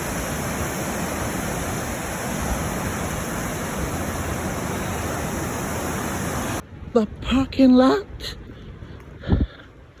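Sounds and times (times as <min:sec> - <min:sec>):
waterfall and river rushing: 0:00.0 - 0:06.6.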